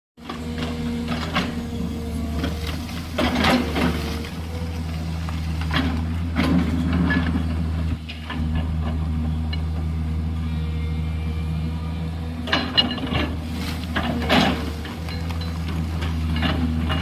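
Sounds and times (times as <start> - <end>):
excavator diesel engine running: 0.2 - 17.0
bucket clanking and scraping gravel: 0.4 - 7.6, 12.5 - 17.0.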